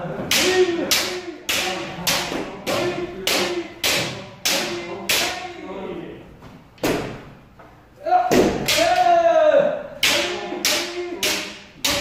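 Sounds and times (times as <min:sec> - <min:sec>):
people shouting: 0:08.0 - 0:12.0.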